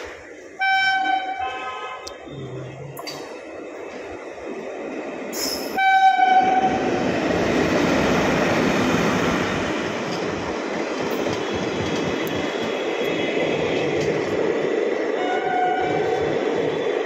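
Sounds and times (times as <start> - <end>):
train wheels rumbling on rails: 0.0 - 17.0
locomotive horn blast: 0.6 - 2.4, 5.8 - 6.8, 15.2 - 16.2.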